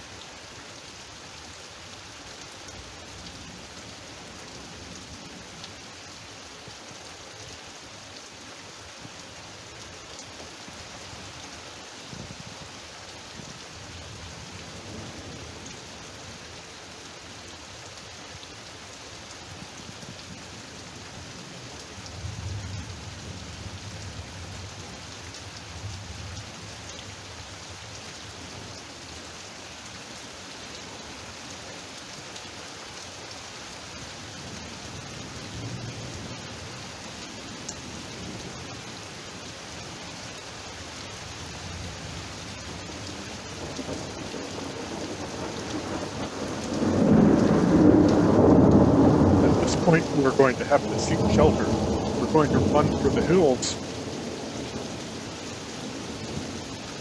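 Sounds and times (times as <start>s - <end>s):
torrential rain pouring: 0.0s - 57.0s
thunder rumbling: 45.2s - 55.2s.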